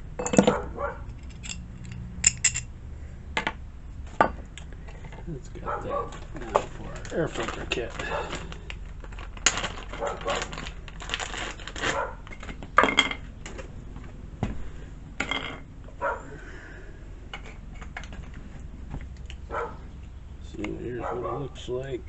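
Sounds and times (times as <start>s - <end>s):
plastic parts clinking and clicking: 0.2s - 2.6s, 6.2s - 13.2s
packaging rustling: 6.2s - 12.4s.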